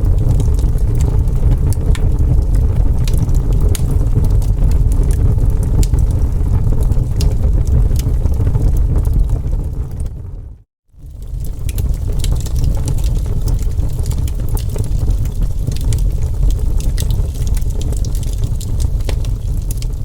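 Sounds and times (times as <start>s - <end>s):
low rumble: 0.0s - 10.6s
wood fire crackling and popping: 0.0s - 20.0s.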